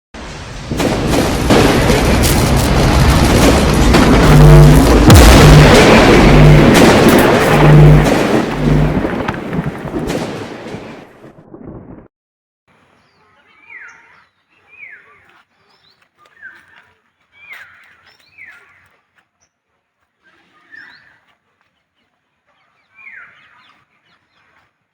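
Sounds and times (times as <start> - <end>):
loud rumbling with low pulsing beat: 1.6 - 9.4.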